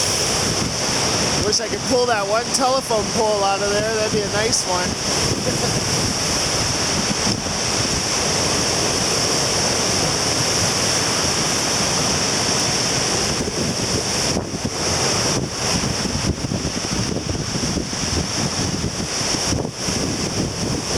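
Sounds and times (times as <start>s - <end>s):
surf washing onto beach: 0.0s - 20.9s
wind buffeting microphone: 0.0s - 20.9s.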